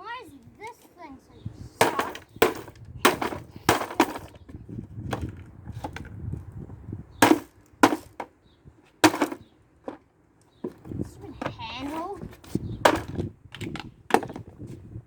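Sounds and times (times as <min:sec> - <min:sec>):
hammer striking plastic: 0:01.8 - 0:04.2, 0:07.2 - 0:08.3, 0:09.0 - 0:09.4.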